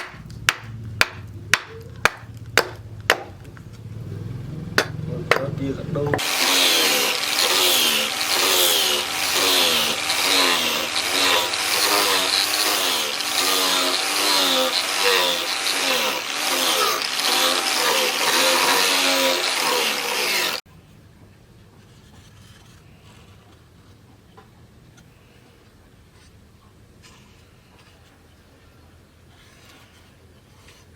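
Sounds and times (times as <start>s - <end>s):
power tool grinding steel: 4.8s - 20.6s.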